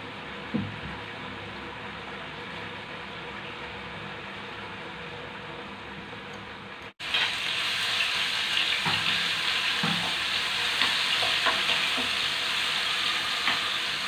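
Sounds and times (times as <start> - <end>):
vegetables sizzling in oil: 7.0 - 14.0.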